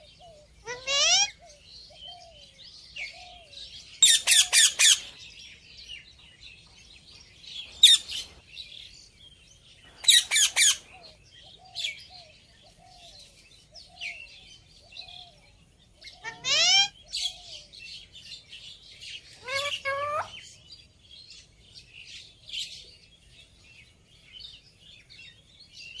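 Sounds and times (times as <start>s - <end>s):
parrot shrill calls: 0.6s - 1.4s, 4.0s - 5.2s, 7.8s - 8.3s, 10.0s - 10.9s, 16.2s - 17.3s, 19.3s - 20.4s
parrot soft chattering: 16.2s - 16.9s, 19.4s - 20.4s.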